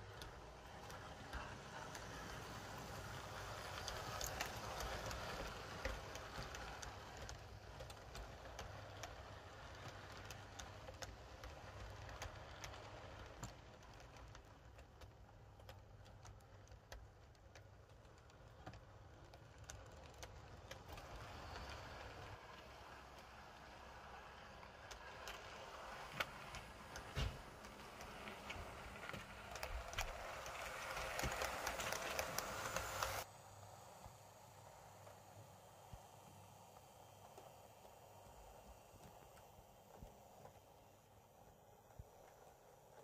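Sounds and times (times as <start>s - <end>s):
model train wheels clicking on rails: 0.0s - 43.0s.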